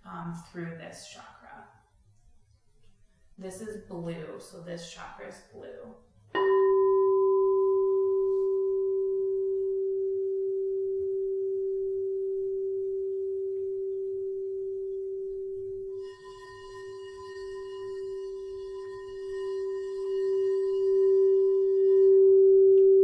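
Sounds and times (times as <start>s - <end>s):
singing bowl ringing: 6.3s - 23.0s.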